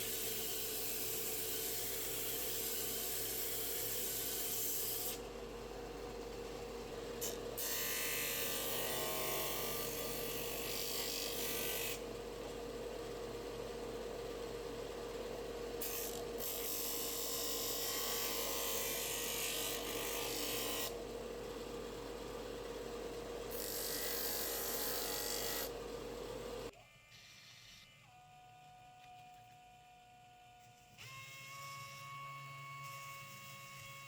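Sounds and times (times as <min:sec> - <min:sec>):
electric power tool humming: 0:23.3 - 0:34.0.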